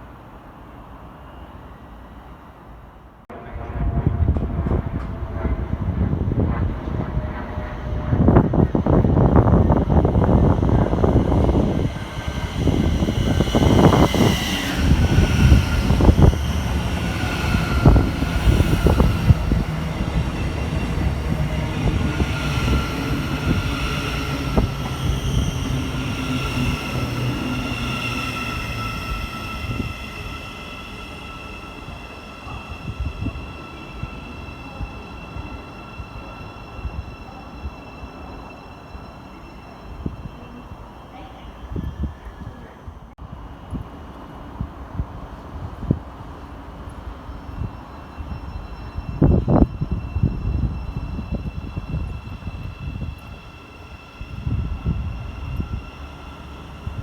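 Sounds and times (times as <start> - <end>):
high steady train whine: 0.0 - 57.0
train wheels rumbling: 3.3 - 57.0.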